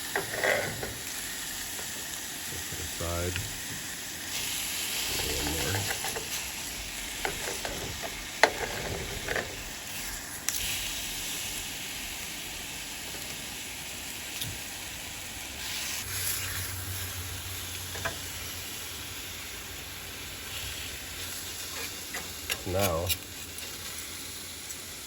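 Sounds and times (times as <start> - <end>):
utensils clicking against pan: 0.0 - 2.0, 5.1 - 9.7, 21.7 - 23.8
steak sizzling in a skillet: 0.0 - 25.0.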